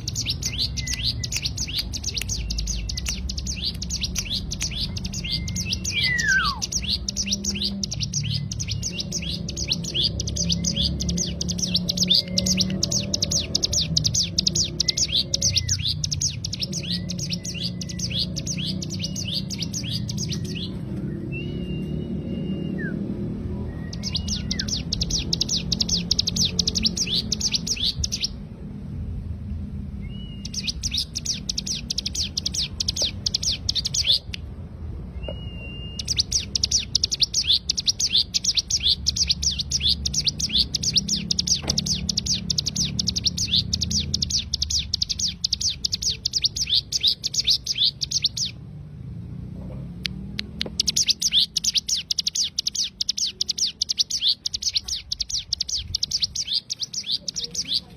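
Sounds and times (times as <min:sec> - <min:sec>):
bird singing rapid high notes: 0:00.0 - 0:28.5, 0:29.9 - 0:48.7, 0:50.6 - 0:57.9
whistled bird note: 0:04.3 - 0:06.8, 0:35.2 - 0:36.2.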